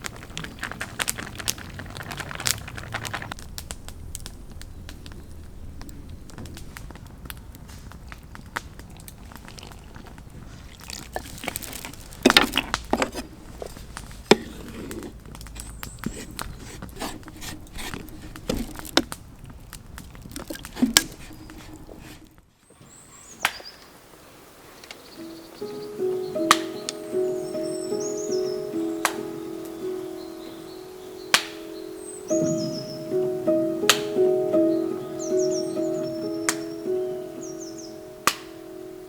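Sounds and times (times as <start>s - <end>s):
campfire crackling: 0.0s - 39.0s
camp cooking gear knocking: 11.4s - 15.2s, 16.0s - 19.2s, 20.3s - 22.2s.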